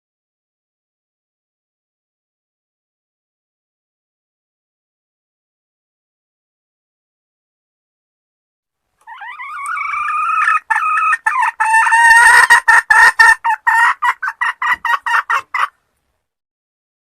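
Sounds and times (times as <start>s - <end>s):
hen calling: 9.0s - 15.7s.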